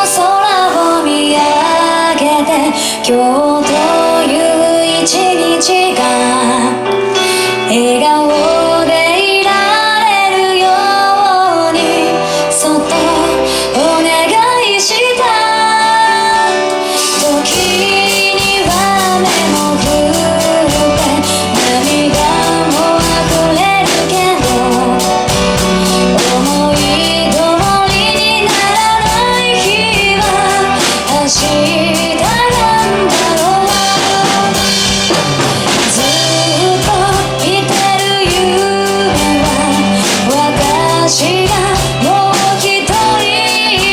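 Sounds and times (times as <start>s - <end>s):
drum kit steady beat: 0.0s - 1.9s, 17.0s - 43.9s
band backing: 0.0s - 43.9s
woman singing pop ballad: 0.0s - 43.9s.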